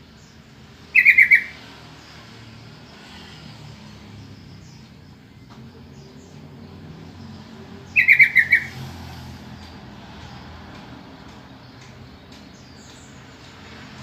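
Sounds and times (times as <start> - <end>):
bird call burst: 1.0 - 1.6, 8.0 - 8.8.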